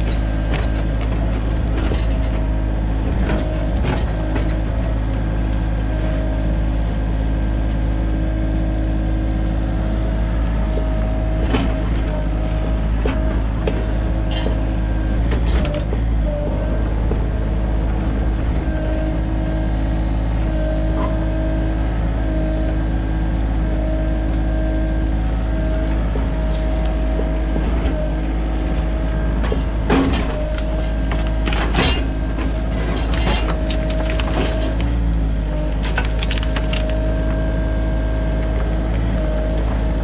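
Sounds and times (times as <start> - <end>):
diesel engine running under load: 0.0 - 40.0
wood cracking: 30.4 - 37.4
tree splintering: 32.1 - 35.0, 35.6 - 37.3.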